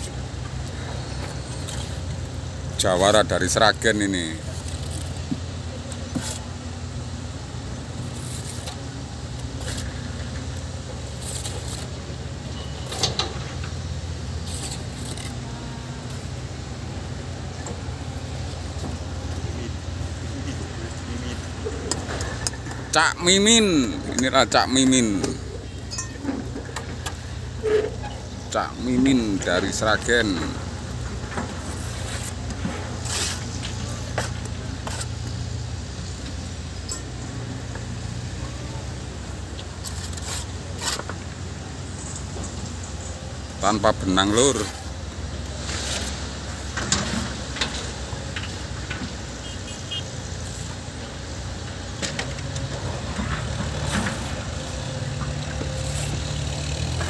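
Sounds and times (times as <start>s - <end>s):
low machinery engine hum: 0.0s - 57.0s
trowel scraping on concrete blocks: 6.0s - 6.5s, 8.0s - 8.8s, 11.0s - 12.0s, 14.3s - 15.5s, 31.5s - 35.4s, 39.8s - 41.2s, 45.6s - 47.4s, 55.6s - 57.0s.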